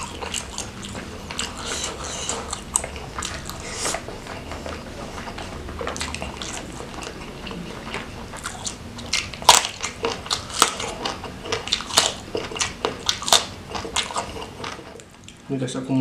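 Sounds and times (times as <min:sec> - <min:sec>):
soft mouth sounds: 0:00.0 - 0:15.5
eggplant crunching when bitten: 0:05.8 - 0:15.4.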